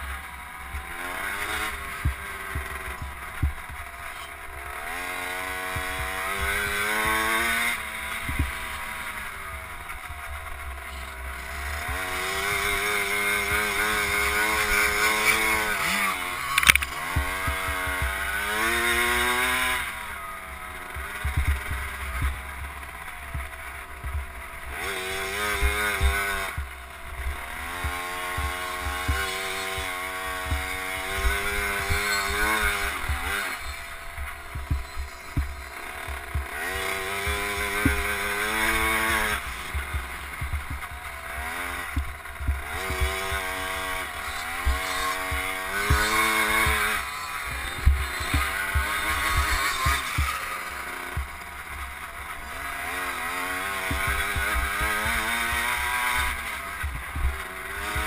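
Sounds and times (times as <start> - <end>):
two-stroke dirt bike engine revving: 0.0 - 58.0
low thumps: 1.8 - 4.0, 5.7 - 13.6, 20.9 - 50.4, 53.9 - 57.4.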